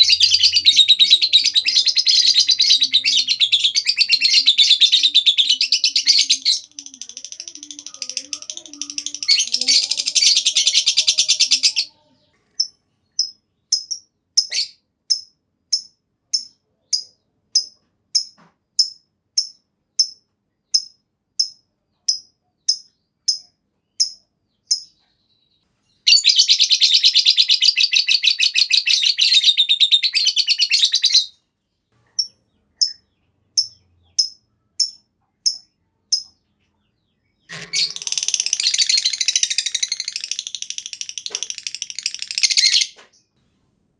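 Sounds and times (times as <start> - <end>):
bird chattering trills: 0.0 - 12.0, 37.4 - 43.0
sharp bird chirps: 12.5 - 31.3, 32.0 - 43.4.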